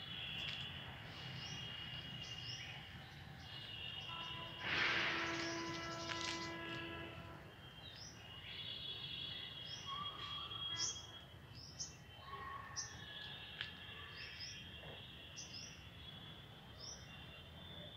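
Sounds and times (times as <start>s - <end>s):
birds chirping: 1.2s - 13.5s.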